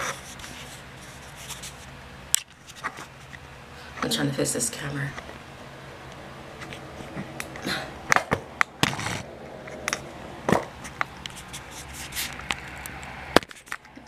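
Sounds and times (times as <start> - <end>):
brief rubbing sounds: 0.0 - 1.9, 10.8 - 12.5.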